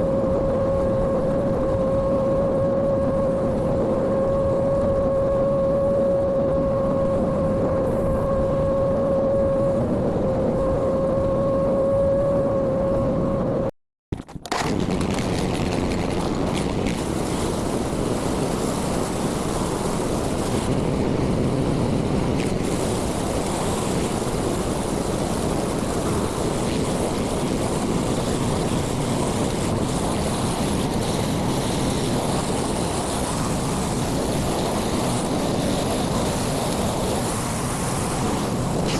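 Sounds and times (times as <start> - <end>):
high whine: 0.0 - 38.9
excavator engine running: 14.2 - 38.9.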